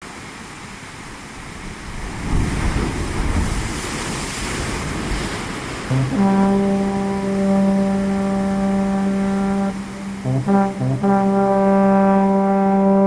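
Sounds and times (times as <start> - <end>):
ocean surf rushing: 0.0 - 13.0
music with held note: 5.9 - 13.0.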